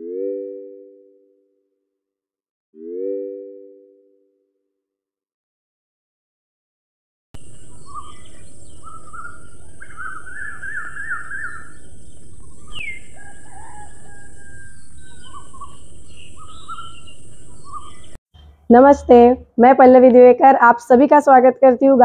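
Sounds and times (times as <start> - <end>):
birds chirping and singing: 7.4 - 19.3
falling bird whistle: 7.8 - 11.8, 12.4 - 18.5.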